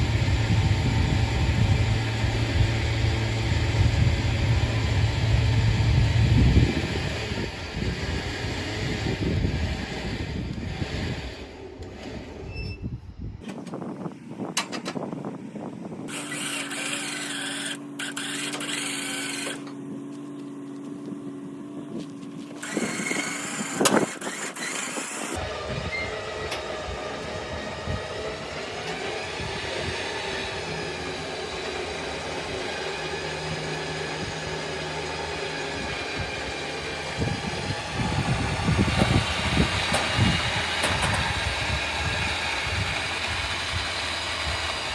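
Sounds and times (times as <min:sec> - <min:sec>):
winch humming: 0:00.0 - 0:12.7, 0:22.6 - 0:44.9.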